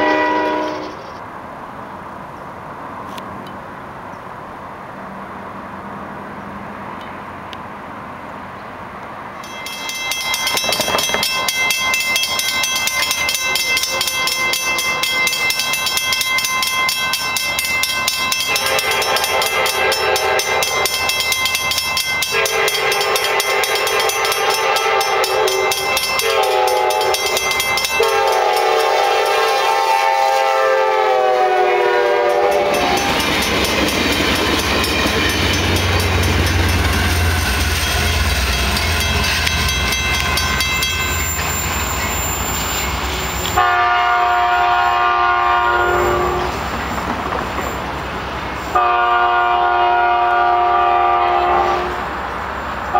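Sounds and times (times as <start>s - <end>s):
train horn blasts: 0.0s - 1.1s, 18.4s - 21.2s, 22.2s - 33.4s, 43.5s - 46.6s, 48.7s - 52.1s
train engine rumble: 0.0s - 52.9s
crossing bell ringing: 9.4s - 47.9s, 48.6s - 52.0s
train wheels rushing: 9.4s - 52.9s.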